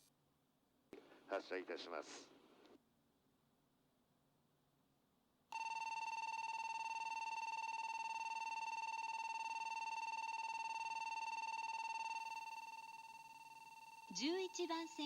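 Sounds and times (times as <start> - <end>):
electric bell ringing: 5.6 - 15.0.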